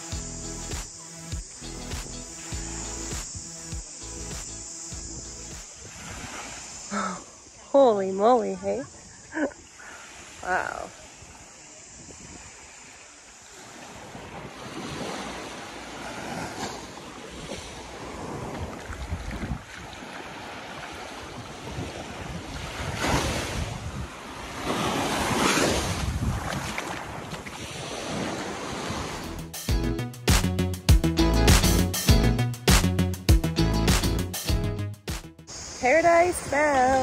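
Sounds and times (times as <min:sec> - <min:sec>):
music: 0:00.0 - 0:05.7, 0:29.2 - 0:36.4
small waves on sandy beach: 0:00.8 - 0:29.3, 0:35.5 - 0:37.0
wind buffeting microphone: 0:17.3 - 0:29.2.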